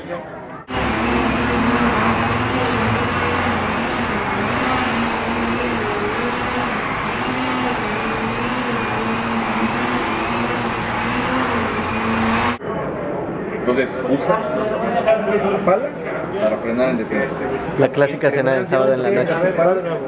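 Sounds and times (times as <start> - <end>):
engine running: 0.7 - 12.6.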